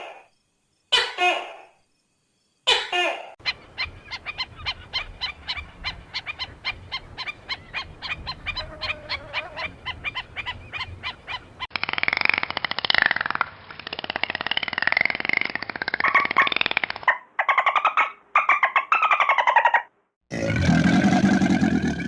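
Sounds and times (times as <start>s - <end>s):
waterfowl honking: 2.7s - 11.7s
harsh buzzy animal call: 7.7s - 13.2s.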